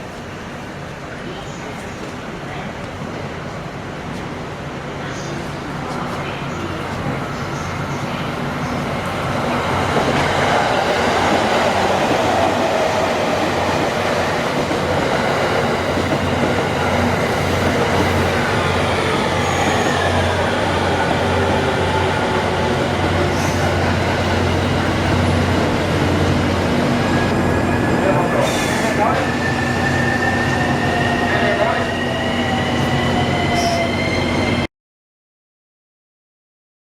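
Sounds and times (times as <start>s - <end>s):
electric train humming: 5.4s - 34.7s.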